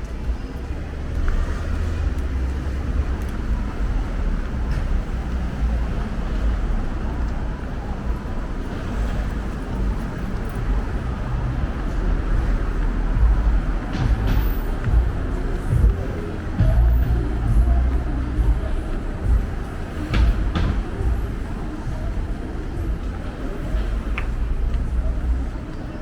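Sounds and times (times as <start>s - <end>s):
traffic rumble: 0.0s - 26.0s
deep low hum: 11.4s - 20.3s.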